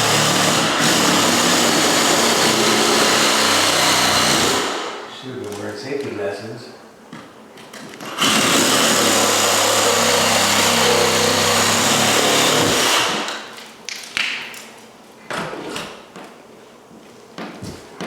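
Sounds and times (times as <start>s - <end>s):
power tool cutting into wall: 0.0s - 5.0s, 8.0s - 13.5s.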